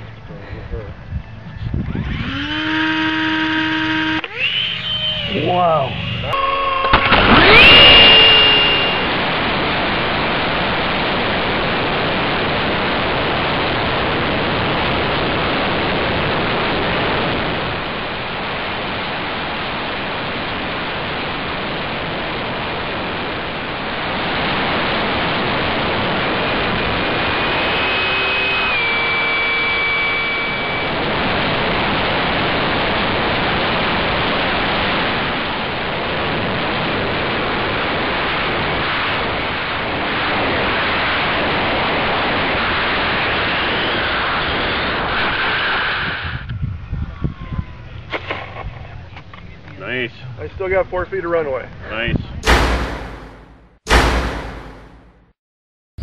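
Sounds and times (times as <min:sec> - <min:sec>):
ducted fan jet whine: 0:00.0 - 0:55.2
steady rushing noise: 0:08.4 - 0:45.5, 0:52.4 - 0:55.3.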